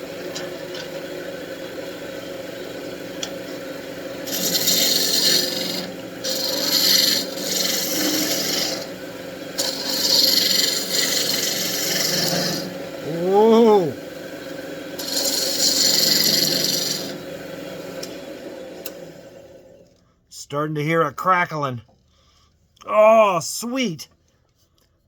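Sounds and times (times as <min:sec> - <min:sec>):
wood lathe humming: 0:00.0 - 0:19.9
turning tool scraping wood: 0:03.2 - 0:13.9, 0:15.0 - 0:17.2.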